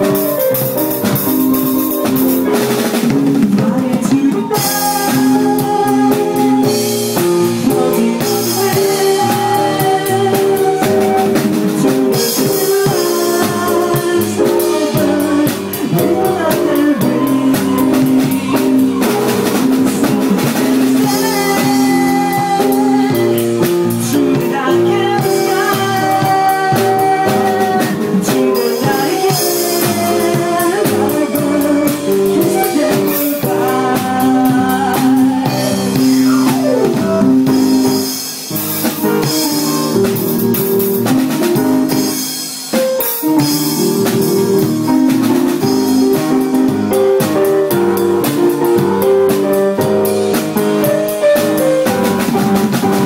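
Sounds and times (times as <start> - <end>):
drum kit beat: 0.0 - 53.0
keyboard chords: 0.0 - 53.0.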